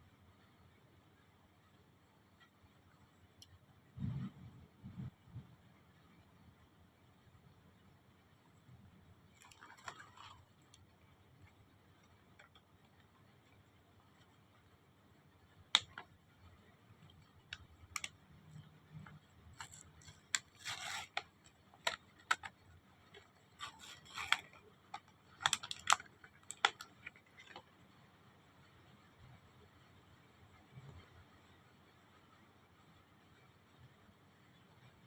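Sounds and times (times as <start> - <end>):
rustling packaging: 9.3 - 10.9, 17.0 - 27.6.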